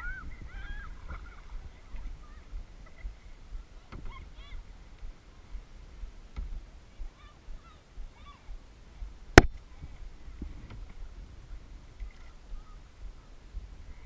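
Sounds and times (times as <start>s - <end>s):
waterfowl honking: 0.0s - 3.0s
water lapping: 0.0s - 14.0s.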